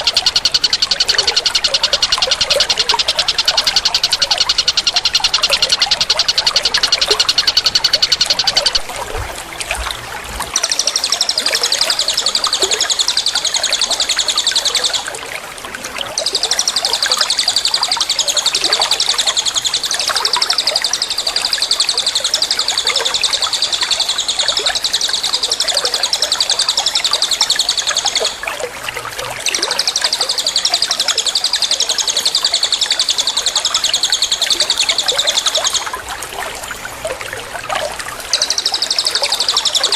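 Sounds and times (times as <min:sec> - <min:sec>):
songbird fast trilling song: 0:00.0 - 0:08.9.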